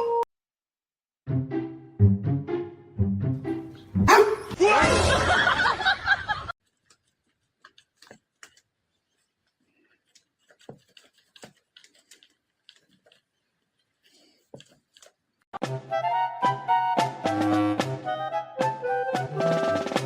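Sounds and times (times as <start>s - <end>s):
dog barking loudly: 4.0s - 4.5s.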